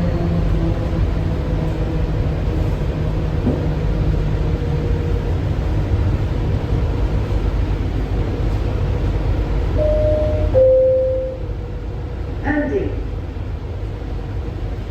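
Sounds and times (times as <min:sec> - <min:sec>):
people mover cabin rumble and hiss: 0:00.0 - 0:14.9
faint whine: 0:09.8 - 0:11.7.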